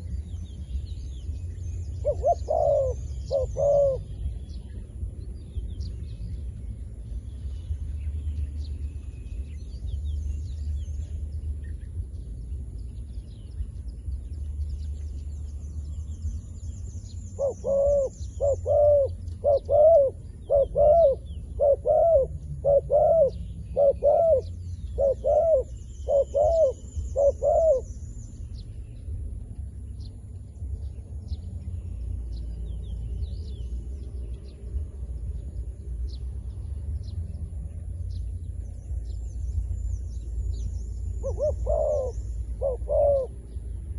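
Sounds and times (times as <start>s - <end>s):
steady low rumble: 0.0s - 43.9s
dove cooing: 2.0s - 4.2s, 17.4s - 27.9s, 41.2s - 43.4s.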